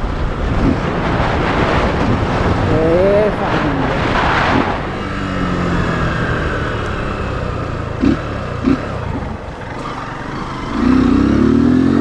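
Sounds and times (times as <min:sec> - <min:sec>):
motorcycle engine running: 0:04.0 - 0:12.0.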